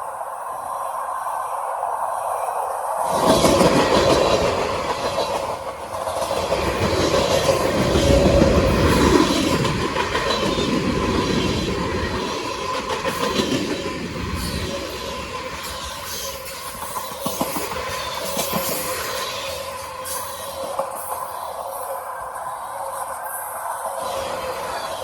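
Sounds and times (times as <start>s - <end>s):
freight train rumble: 0.0s - 25.0s
train wheels clacking over rail joints: 3.1s - 21.3s.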